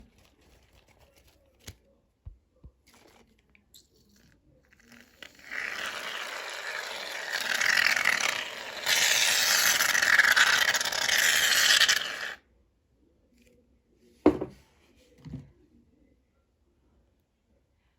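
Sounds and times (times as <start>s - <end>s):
aerosol can hissing: 5.3s - 12.4s.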